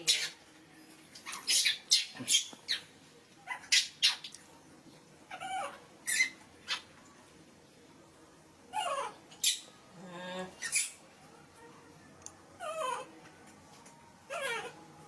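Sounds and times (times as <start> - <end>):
monkey squeaking: 1.2 - 2.8, 3.5 - 4.4, 5.3 - 6.9, 10.6 - 11.0, 14.3 - 14.7.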